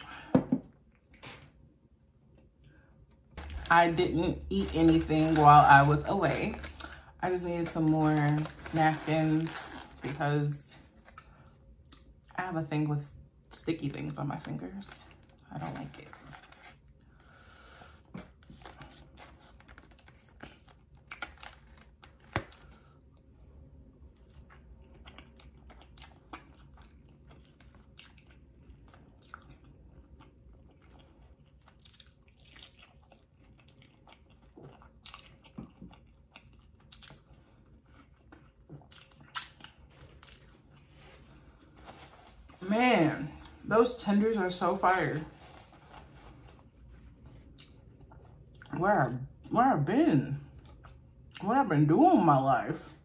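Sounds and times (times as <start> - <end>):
chewing and biting crunchy food: 18.0 - 42.6, 45.8 - 48.8, 50.5 - 51.4.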